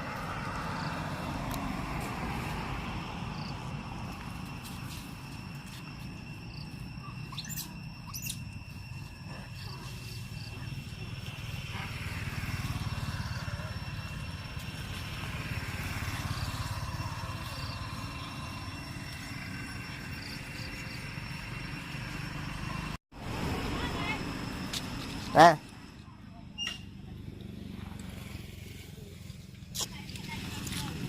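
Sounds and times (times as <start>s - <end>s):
bird chirps: 7.0s - 8.5s.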